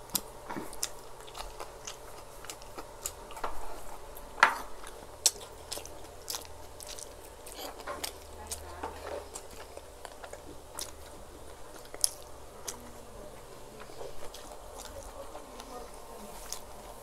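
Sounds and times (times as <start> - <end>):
people chewing rice: 0.0 - 17.0.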